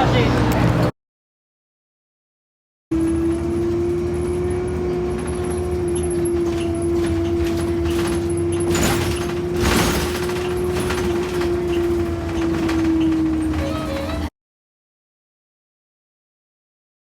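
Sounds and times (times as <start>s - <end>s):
low rumble of traffic: 0.0s - 0.9s, 2.9s - 14.3s.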